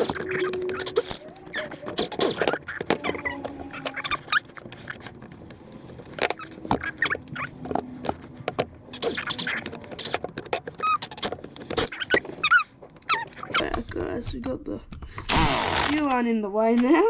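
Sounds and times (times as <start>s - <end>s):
short high squeaks: 0.0s - 5.1s, 6.3s - 8.0s, 8.9s - 13.6s
plastic and metal parts clicking: 0.0s - 13.9s.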